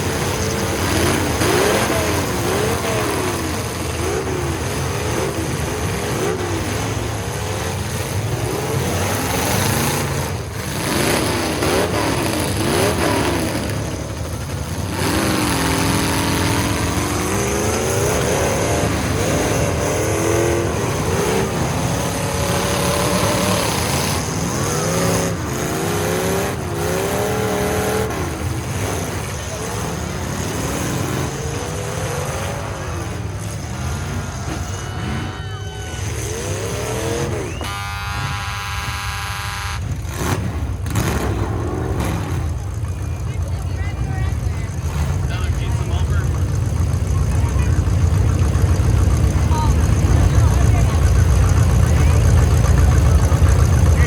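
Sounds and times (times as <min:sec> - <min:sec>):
truck engines revving: 0:00.0 - 0:54.0.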